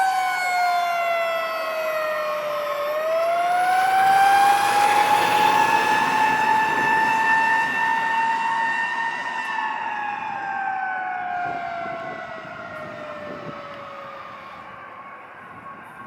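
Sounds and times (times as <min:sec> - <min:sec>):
fire truck mechanical siren: 0:00.0 - 0:16.0.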